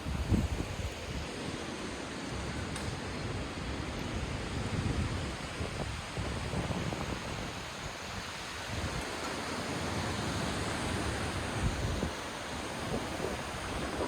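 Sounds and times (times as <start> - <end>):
wind buffeting microphone: 0.0 - 1.5, 3.4 - 9.2, 10.9 - 14.0.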